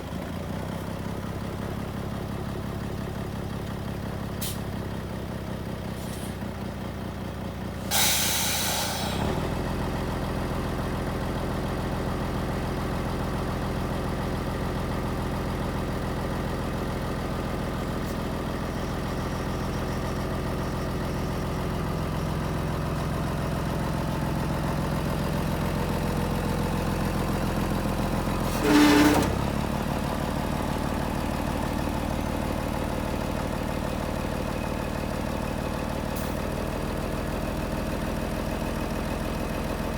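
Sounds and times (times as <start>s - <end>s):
truck diesel engine idling: 0.0s - 39.9s
loud hissing burst: 7.9s - 9.2s.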